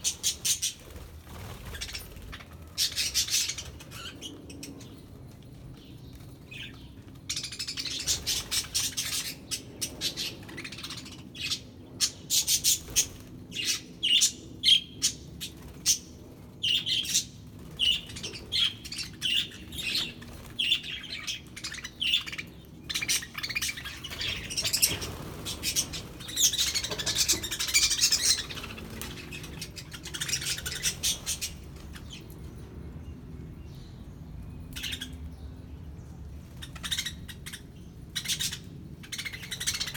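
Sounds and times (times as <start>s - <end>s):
budgerigars chirping: 36.7s - 37.6s.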